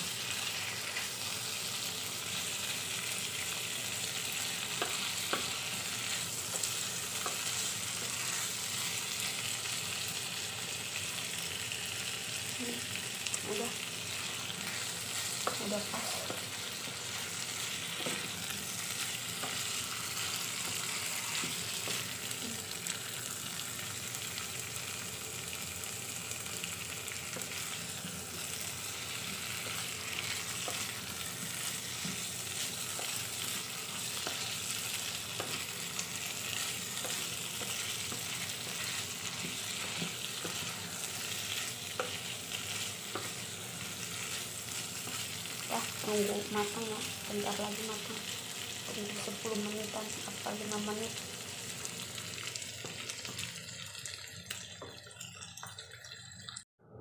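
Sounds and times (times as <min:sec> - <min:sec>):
food sizzling in a pan: 0:00.0 - 0:56.7
spatula scraping and tapping pan: 0:04.7 - 0:05.5.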